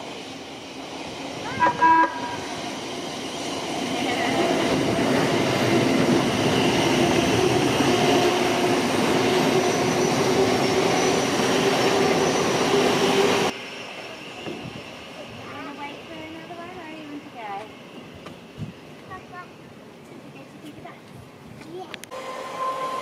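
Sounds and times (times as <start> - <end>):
train passing: 0.0 - 23.0.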